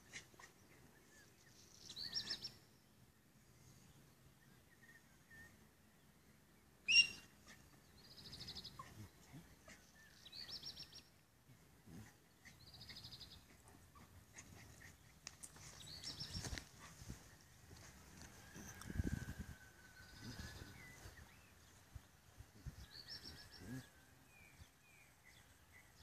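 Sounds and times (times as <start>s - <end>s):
songbird high trill: 6.9s - 7.3s.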